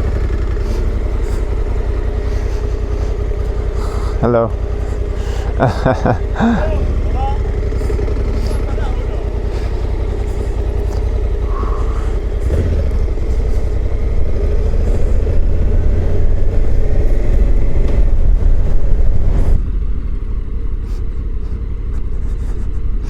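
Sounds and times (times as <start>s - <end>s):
motorcycle engine running: 0.0s - 23.0s
wind rumble on microphone: 9.3s - 23.0s.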